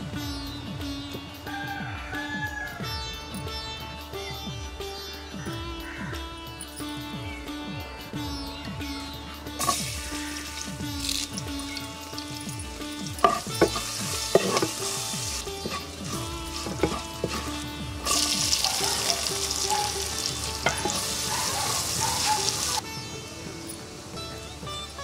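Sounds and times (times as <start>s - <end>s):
oil sizzling in a pot: 9.6s - 22.8s
wooden spoon knocking on pot: 13.2s - 14.8s, 15.6s - 18.3s.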